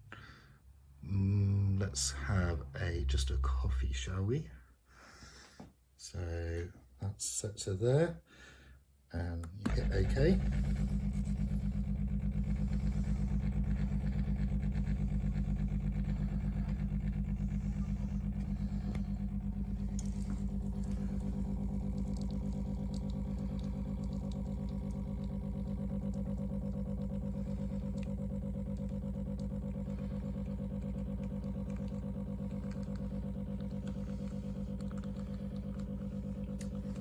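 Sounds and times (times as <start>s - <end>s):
espresso machine pump buzzing: 9.7s - 37.0s.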